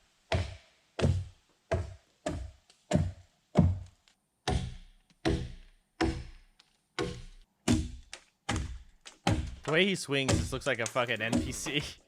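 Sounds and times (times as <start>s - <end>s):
axe chopping log: 7.0s - 10.6s.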